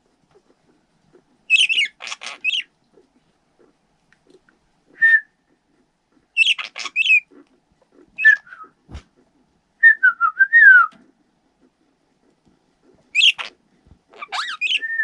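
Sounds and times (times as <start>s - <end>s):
budgerigar chirping: 1.1s - 2.8s, 5.7s - 8.7s, 13.1s - 15.0s.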